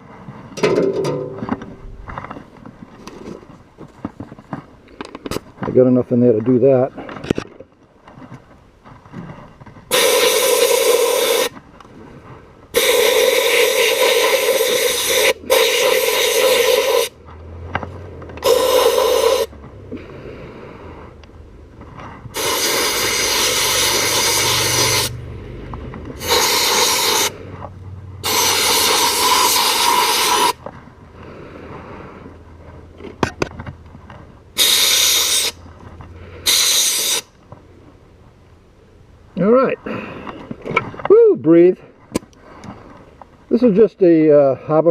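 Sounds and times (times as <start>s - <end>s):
sandblast gun hissing bursts: 9.9s - 11.5s, 12.8s - 17.1s, 18.4s - 19.5s, 22.3s - 25.2s, 26.2s - 27.4s, 28.2s - 30.6s, 34.6s - 35.6s, 36.4s - 37.3s.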